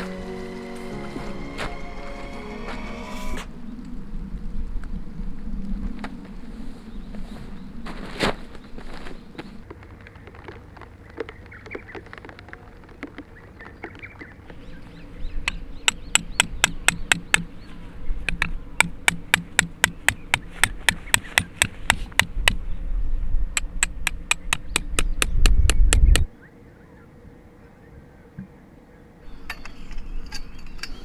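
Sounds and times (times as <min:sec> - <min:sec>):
hammer striking tent pegs: 0:15.5 - 0:17.5, 0:18.3 - 0:22.6.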